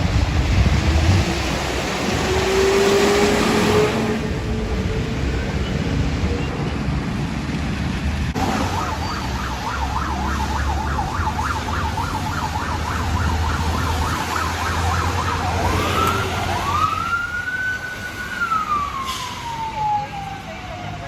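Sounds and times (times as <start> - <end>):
emergency vehicle siren: 8.3 - 21.0.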